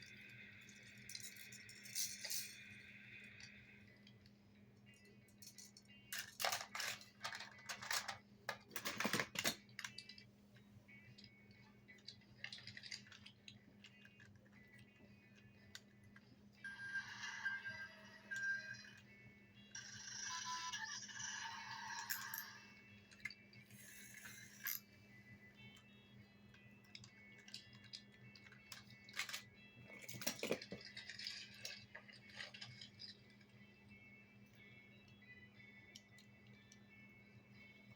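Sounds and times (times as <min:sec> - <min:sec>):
plastic toy clicking and rattling: 0:05.3 - 0:10.3, 0:11.1 - 0:14.9, 0:26.5 - 0:33.6.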